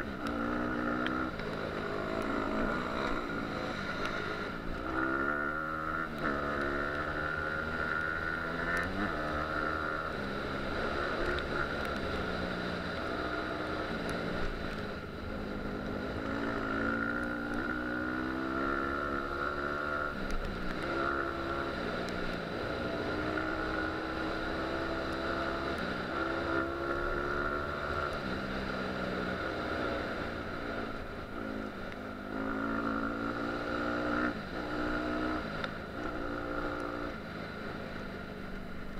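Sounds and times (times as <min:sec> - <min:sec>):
dirt bike engine revving: 0:00.0 - 0:11.8.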